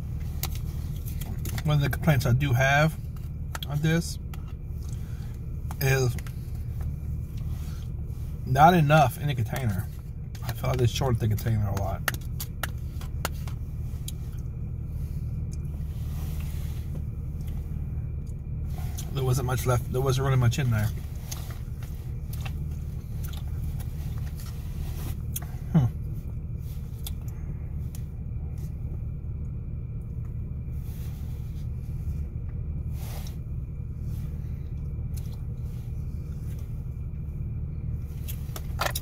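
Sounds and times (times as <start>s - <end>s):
low rumble inside a car: 0.0s - 39.0s
faint chewing and biting: 0.1s - 1.7s, 9.5s - 19.2s, 20.9s - 26.2s, 26.8s - 30.4s.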